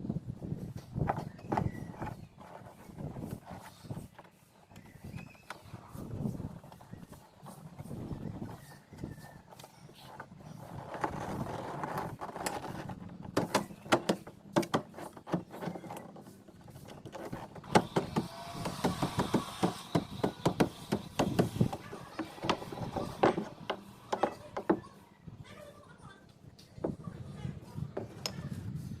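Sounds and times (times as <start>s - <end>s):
scraping or rubbing: 0.4s - 25.0s
knocks and taps: 17.2s - 24.9s.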